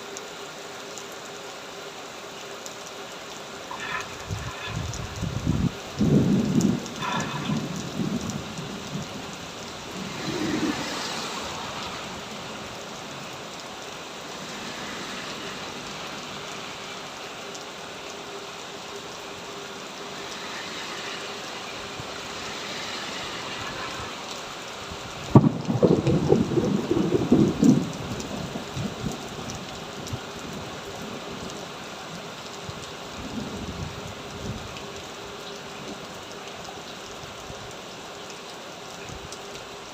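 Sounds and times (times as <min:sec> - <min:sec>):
heavy rain pouring: 0:00.0 - 0:39.9
thunder rumbling: 0:03.7 - 0:13.4, 0:25.0 - 0:29.2
sharp thunderclap: 0:25.3 - 0:27.9.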